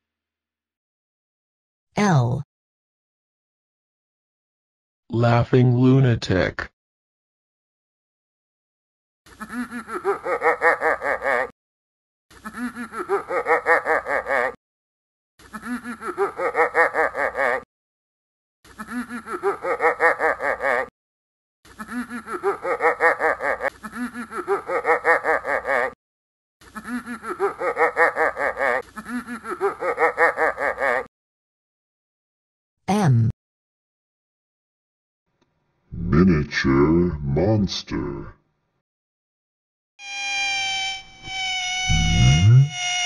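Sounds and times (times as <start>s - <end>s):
cartoon laugh sound effect: 9.3s - 11.5s, 12.3s - 14.6s, 15.4s - 17.6s, 18.7s - 20.9s, 21.7s - 26.0s, 26.6s - 31.1s.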